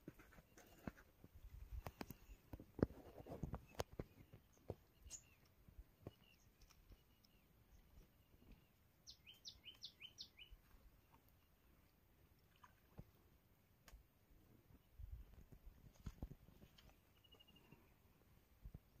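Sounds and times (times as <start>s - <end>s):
faint bird chirps: 1.4s - 11.6s, 16.6s - 18.1s.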